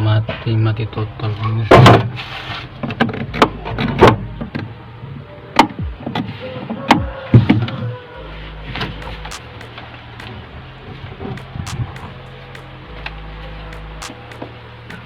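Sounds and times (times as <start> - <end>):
steady low hum: 8.2 - 15.0
sharp knocks and clacks: 11.4 - 12.7.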